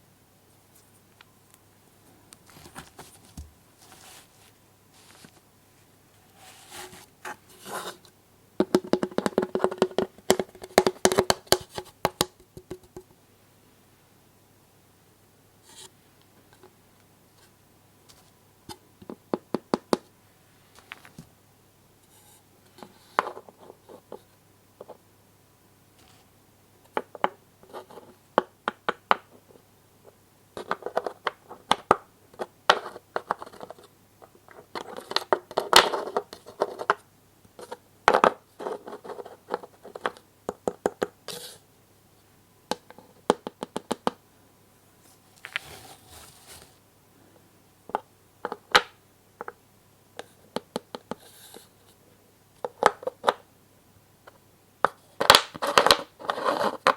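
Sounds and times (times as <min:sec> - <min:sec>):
scraping and rustling: 0:02.4 - 0:05.4, 0:06.2 - 0:08.1, 0:45.0 - 0:46.8.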